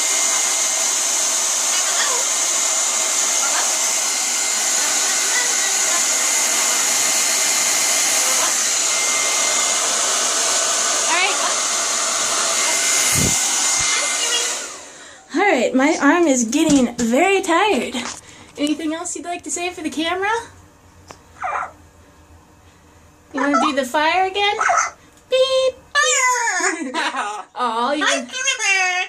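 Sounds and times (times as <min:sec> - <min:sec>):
hair dryer blowing: 0:00.0 - 0:15.3.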